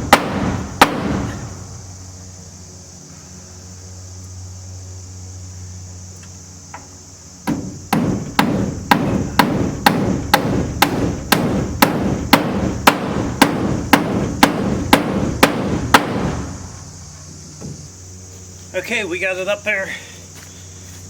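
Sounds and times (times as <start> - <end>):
hammer pounding on wood: 0.0 - 1.6, 7.4 - 16.6
insects buzzing: 0.0 - 21.0.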